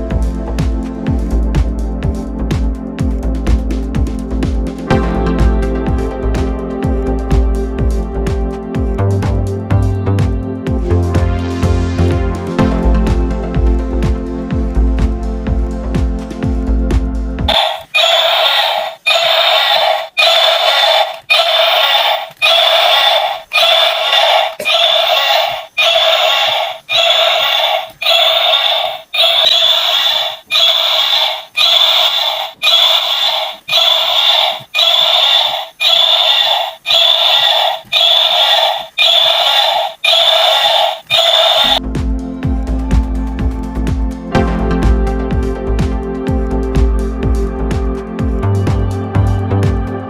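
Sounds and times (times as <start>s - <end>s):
tinny toy electronic sound effect: 17.5s - 41.8s.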